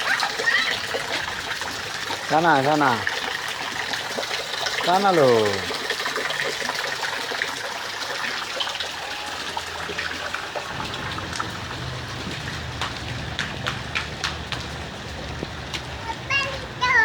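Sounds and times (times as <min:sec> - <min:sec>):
running water: 0:00.0 - 0:17.0
short sharp water sounds: 0:00.0 - 0:17.0
steady rain: 0:09.0 - 0:17.0.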